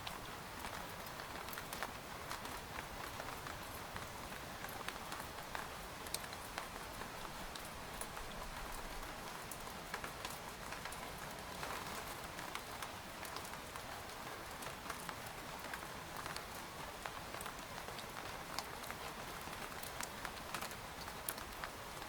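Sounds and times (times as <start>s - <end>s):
rain pattering on a tent: 0.0s - 22.0s.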